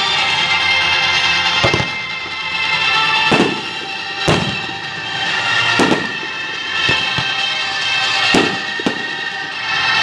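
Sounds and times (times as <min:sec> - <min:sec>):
music with held tones: 0:00.0 - 0:10.0
firework bangs: 0:01.5 - 0:02.2, 0:02.9 - 0:10.0.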